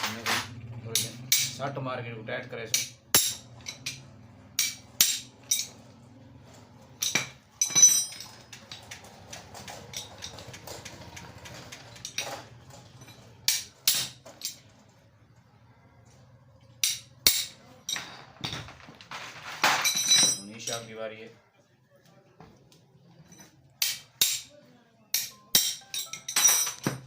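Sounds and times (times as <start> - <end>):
tools knocking on metal parts: 0.0 - 1.7, 2.6 - 15.0, 16.7 - 21.0, 23.2 - 24.5, 25.1 - 27.0.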